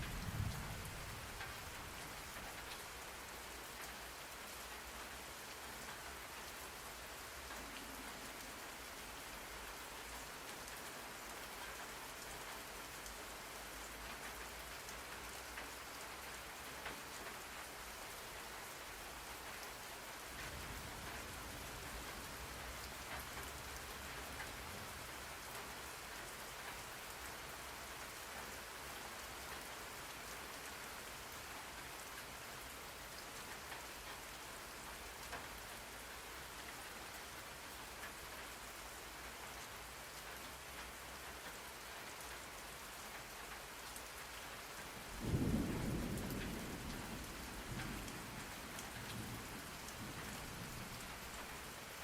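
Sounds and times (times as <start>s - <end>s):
thunder clap and rumble: 0.0s - 2.4s, 45.0s - 51.4s
steady rain hiss: 0.0s - 52.0s.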